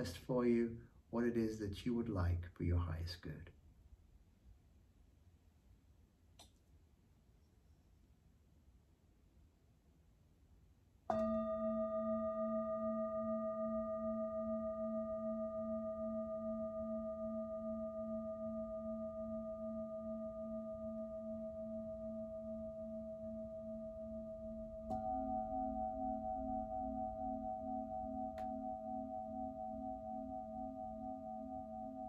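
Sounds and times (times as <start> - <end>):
singing bowl ringing: 11.1 - 32.0.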